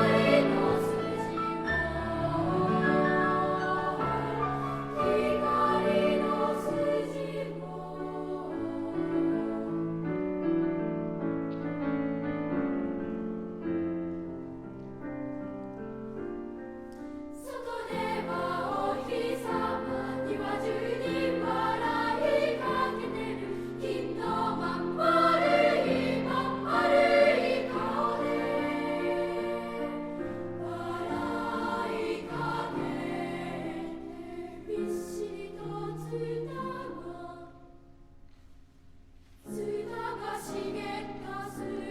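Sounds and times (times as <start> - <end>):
children's choir singing: 0.0 - 10.0, 17.4 - 37.8, 39.4 - 41.9
piano accompaniment: 0.0 - 38.2.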